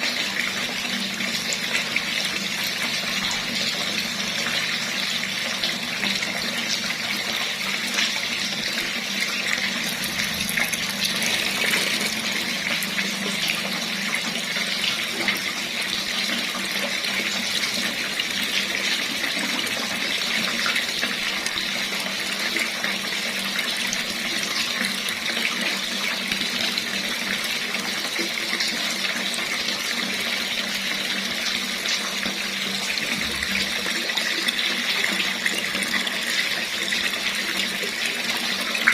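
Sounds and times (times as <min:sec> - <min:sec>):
water running from a tap: 0:00.0 - 0:38.9.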